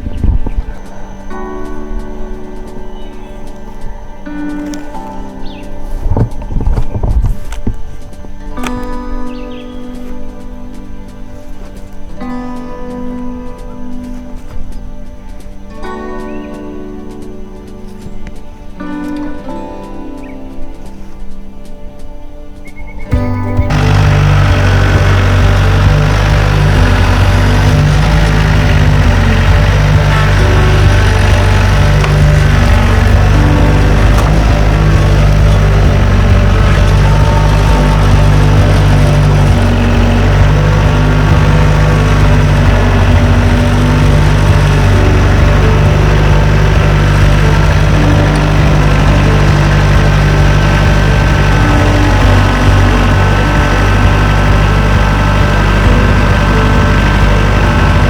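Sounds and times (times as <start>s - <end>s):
sawmill engine running: 23.1s - 58.0s.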